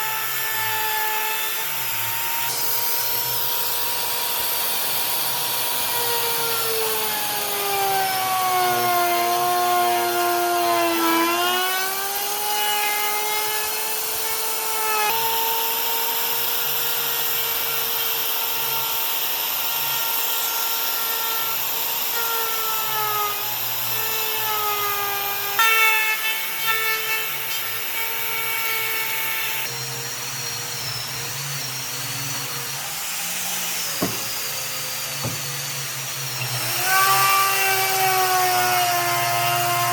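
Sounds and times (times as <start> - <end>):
power tool cutting wood: 0.0 - 39.9
sharp knocks: 33.9 - 34.6, 35.2 - 35.6.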